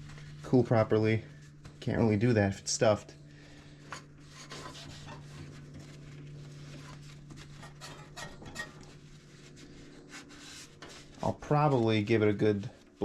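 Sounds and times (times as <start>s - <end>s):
steady low hum: 0.0s - 13.0s
rubbing and scraping handling noises: 3.6s - 13.0s.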